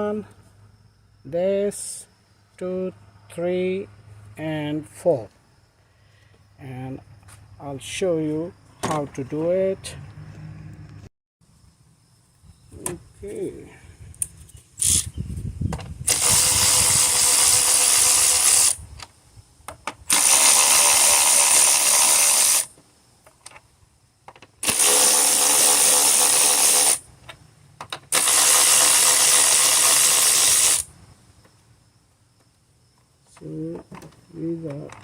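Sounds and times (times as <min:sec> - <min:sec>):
power tool spinning out bolts: 0:14.8 - 0:15.1, 0:15.8 - 0:18.8, 0:20.0 - 0:22.7, 0:24.5 - 0:27.0, 0:27.9 - 0:30.9.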